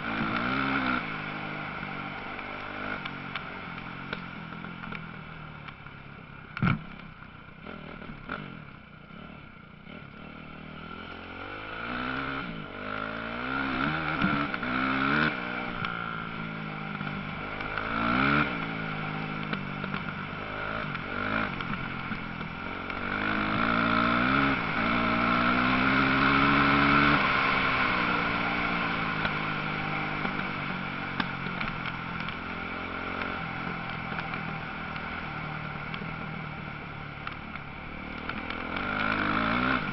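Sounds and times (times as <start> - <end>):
motocross bike engines revving: 38.2 - 39.9.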